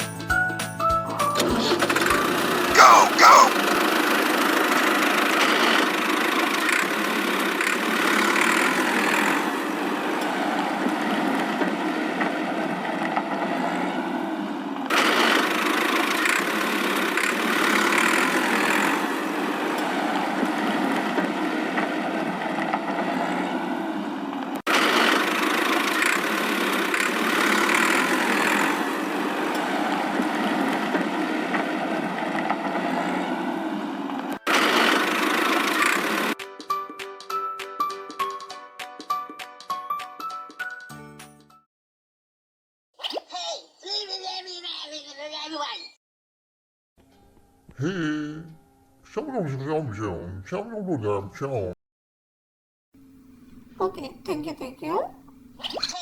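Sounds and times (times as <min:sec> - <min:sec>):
engine running: 0:01.8 - 0:02.8, 0:03.6 - 0:23.8, 0:24.7 - 0:36.4.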